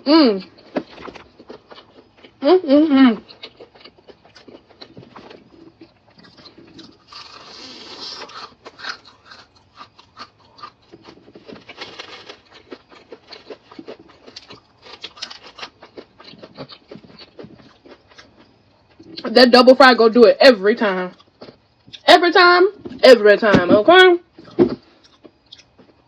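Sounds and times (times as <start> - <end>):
crunchy chewing: 0.4 - 2.4, 3.1 - 19.3, 21.1 - 22.0, 24.3 - 26.0.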